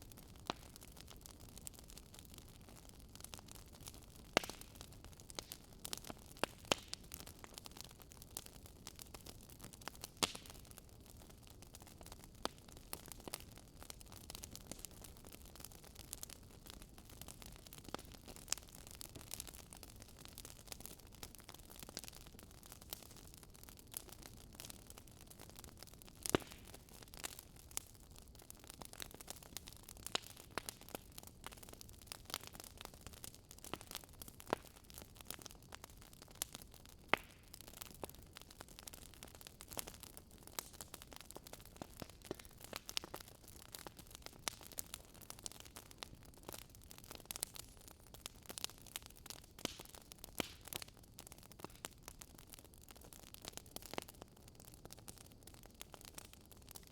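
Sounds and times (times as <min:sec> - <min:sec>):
wood fire crackling and popping: 0:00.0 - 0:56.9.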